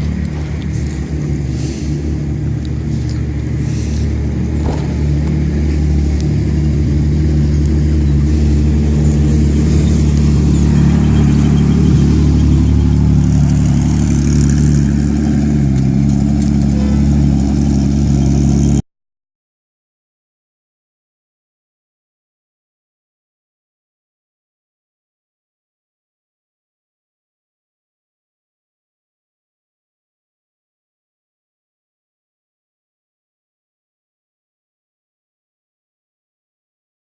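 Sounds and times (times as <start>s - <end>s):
engine humming: 0.0s - 18.8s.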